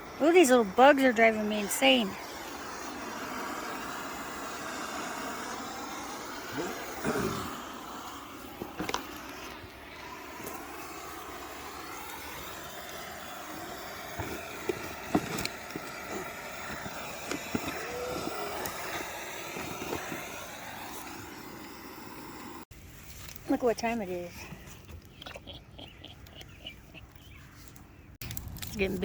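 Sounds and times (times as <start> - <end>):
bonfire rushing: 0.0 - 22.6
fire crackling and popping: 0.0 - 24.3, 28.2 - 29.0.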